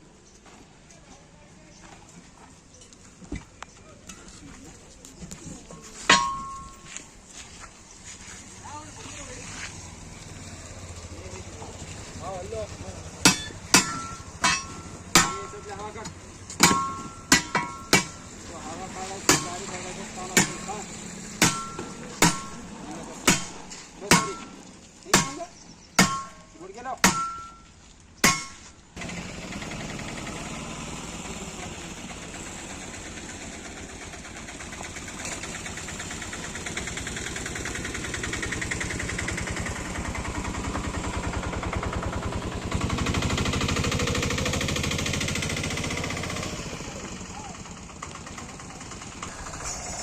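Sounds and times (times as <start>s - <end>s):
hammer ringing on metal rim: 6.1s - 6.9s, 13.3s - 15.7s, 16.6s - 18.3s, 21.4s - 22.6s, 26.0s - 27.6s
engine idling: 8.6s - 50.0s.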